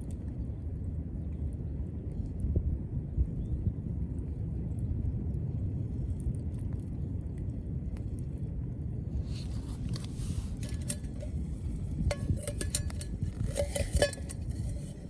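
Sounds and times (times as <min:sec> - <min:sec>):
metal cookware clinking: 0:10.6 - 0:11.4, 0:12.0 - 0:15.0.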